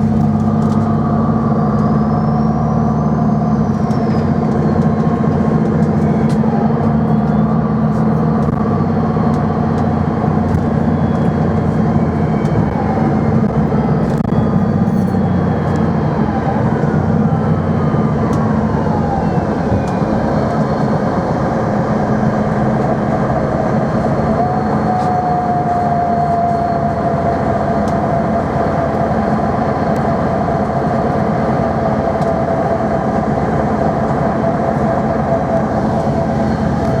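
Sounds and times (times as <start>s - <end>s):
tram wheels and motors rumbling: 0.0s - 37.0s
steady high whine: 3.6s - 37.0s
whining tones sliding down: 8.5s - 37.0s.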